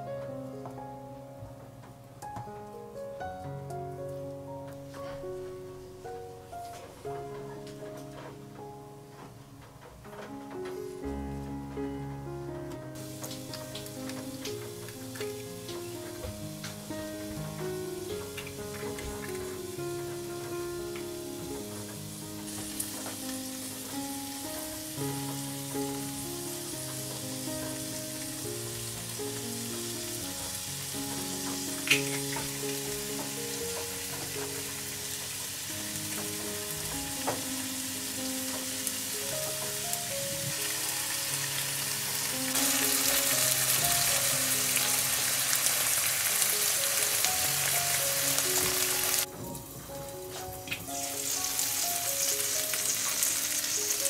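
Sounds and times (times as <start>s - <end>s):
food sizzling in a pan: 13.0s - 54.0s.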